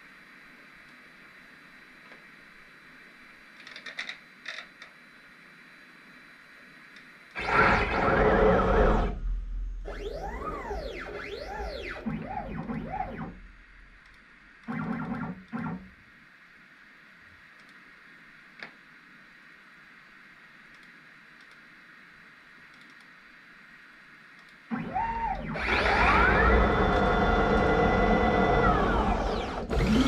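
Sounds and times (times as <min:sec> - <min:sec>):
stepper motors whining: 0:07.4 - 0:13.9, 0:24.7 - 0:30.0
deep machine rumble: 0:07.4 - 0:14.1.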